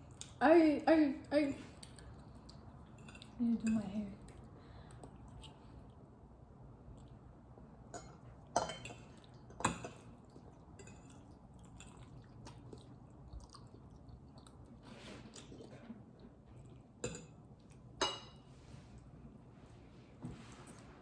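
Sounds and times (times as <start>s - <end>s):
wet chewing: 6.8s - 7.4s, 9.1s - 18.0s.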